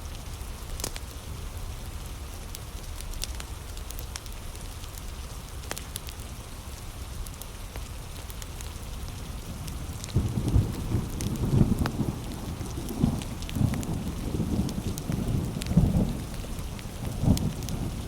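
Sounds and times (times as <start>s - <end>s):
wood fire crackling: 0.1s - 18.0s
thunder rumbling: 9.6s - 18.0s.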